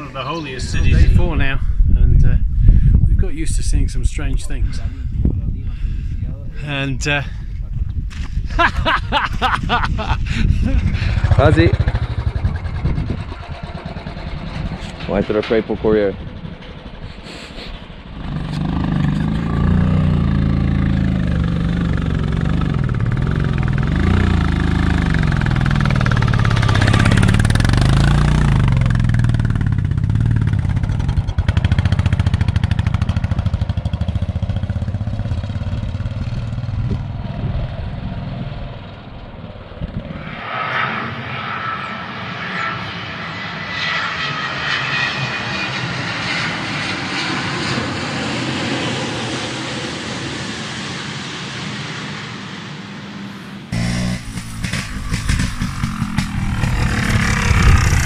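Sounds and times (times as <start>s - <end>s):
thin high engine drone: 10.3s - 32.6s, 33.4s - 58.0s
motorcycle engine running: 10.4s - 17.1s, 18.1s - 38.7s, 53.7s - 58.0s.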